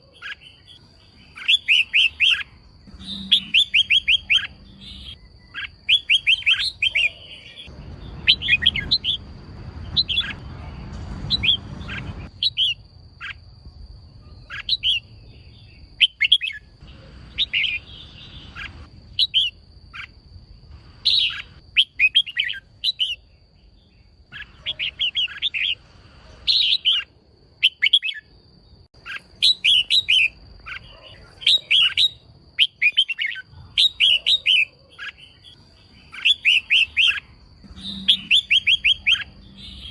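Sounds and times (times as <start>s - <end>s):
bird chirping: 0.0s - 39.9s
low rumbling noise: 7.6s - 14.4s.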